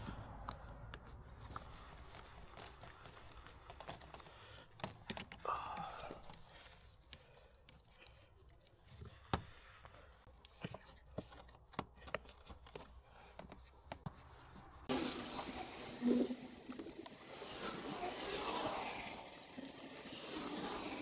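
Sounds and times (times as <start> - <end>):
faint handling clicks and taps: 0.9 - 14.6
steady hiss: 14.9 - 21.0.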